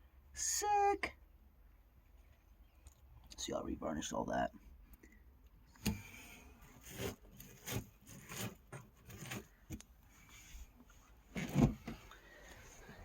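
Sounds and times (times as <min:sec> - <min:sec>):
light knocks and scrapes: 0:05.8 - 0:12.1.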